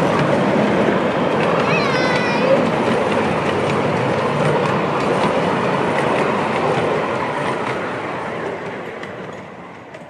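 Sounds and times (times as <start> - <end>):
train coaches rolling past: 0.0 - 10.0
wheels clicking over rail joints: 0.0 - 10.0.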